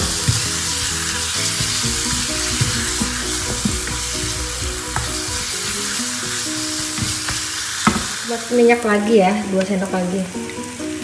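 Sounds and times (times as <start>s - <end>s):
spatula scraping a pan: 0.0s - 8.4s
chili paste sizzling in oil: 0.0s - 11.0s.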